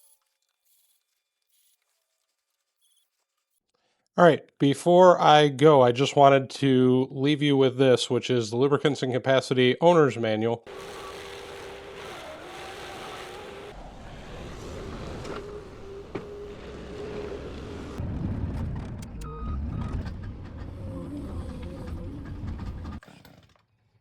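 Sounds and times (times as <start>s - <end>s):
tractor diesel engine whine: 10.7s - 23.4s
low rumble: 13.8s - 23.0s
clicks: 18.6s - 20.9s.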